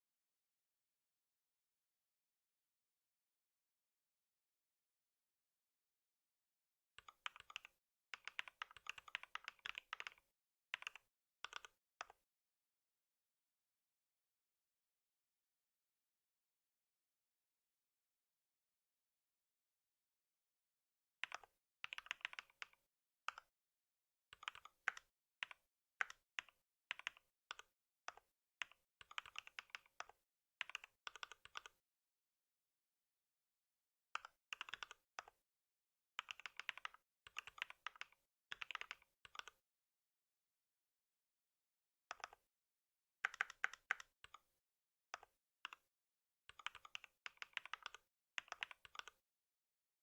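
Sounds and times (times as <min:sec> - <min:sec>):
computer keyboard typing: 0:07.0 - 0:10.2, 0:10.8 - 0:12.2, 0:21.3 - 0:23.4, 0:24.4 - 0:31.8, 0:34.2 - 0:35.3, 0:36.2 - 0:39.6, 0:43.2 - 0:44.4, 0:46.5 - 0:49.2.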